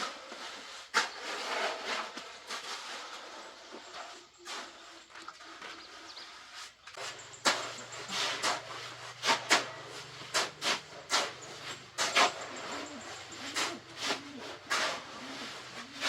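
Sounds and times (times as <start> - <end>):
hand tool scraping loose material: 7.0 - 16.0.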